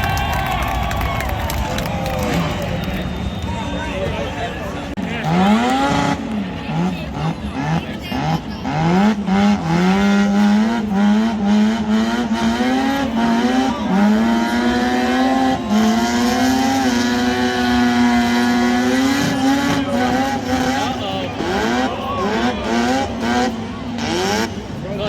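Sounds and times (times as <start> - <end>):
car engine revving high: 4.7 - 25.0.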